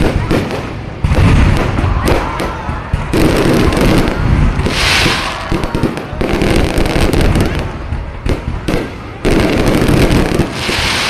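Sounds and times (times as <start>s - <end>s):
fireworks bangs and booms: 0.0s - 11.0s
hissing crackle: 4.1s - 6.2s, 10.4s - 11.0s.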